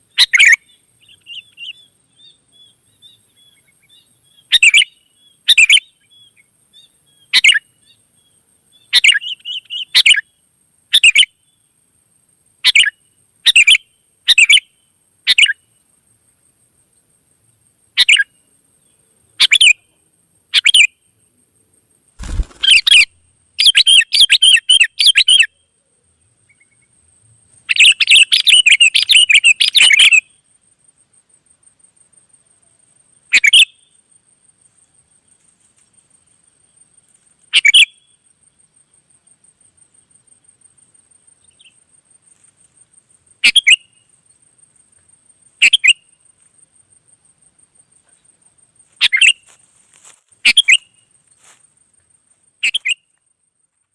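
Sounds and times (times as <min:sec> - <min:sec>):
bird calling and chattering: 0:00.2 - 0:01.8, 0:22.2 - 0:25.6, 0:27.7 - 0:30.3, 0:33.3 - 0:33.8, 0:37.5 - 0:38.1, 0:43.4 - 0:44.0, 0:45.6 - 0:46.1, 0:49.0 - 0:49.5, 0:50.4 - 0:51.0, 0:52.6 - 0:53.1.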